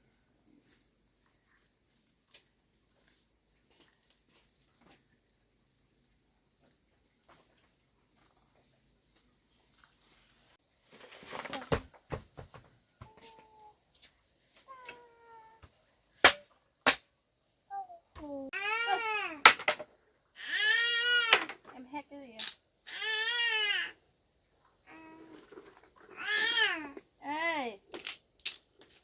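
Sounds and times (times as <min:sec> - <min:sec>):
insects chirring: 0:00.0 - 0:29.0
clatter and sharp knocks: 0:19.5 - 0:19.9.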